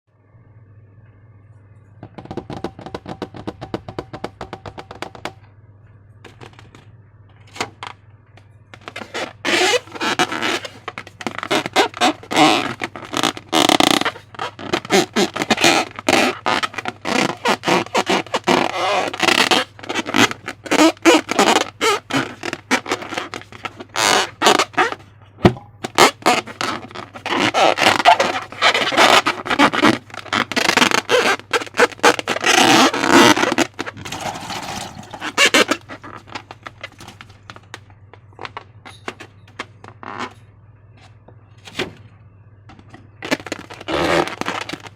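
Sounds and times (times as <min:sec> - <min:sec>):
slime squelching: 0:25.8 - 0:37.1.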